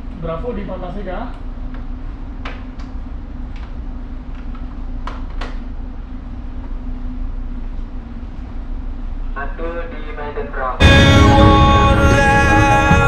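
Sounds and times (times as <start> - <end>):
ship machinery droning: 10.8 - 13.0.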